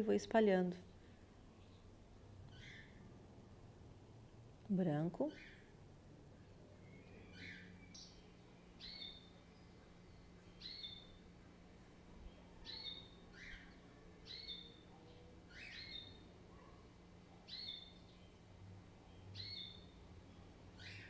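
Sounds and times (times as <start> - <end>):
sweeping bird calls: 2.5 - 3.0, 6.8 - 11.2, 12.3 - 16.3, 17.4 - 21.0
bird chirping: 2.5 - 3.1, 6.7 - 11.5, 12.2 - 21.0.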